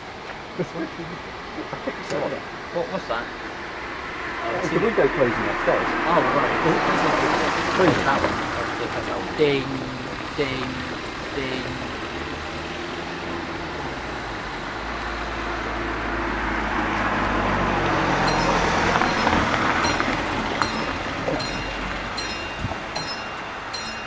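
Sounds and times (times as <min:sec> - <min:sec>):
vehicle passing with engine hum: 0:00.0 - 0:24.0
crossing warning alarm tones: 0:17.7 - 0:24.0.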